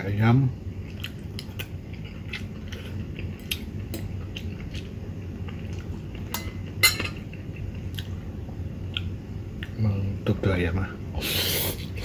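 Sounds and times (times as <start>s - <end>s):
person chewing noodles: 0.8s - 6.3s, 7.2s - 9.8s.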